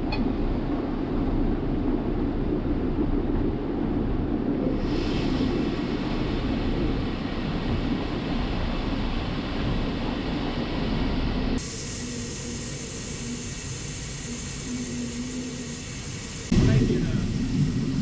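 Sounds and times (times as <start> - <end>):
hiss: 4.8 - 18.0.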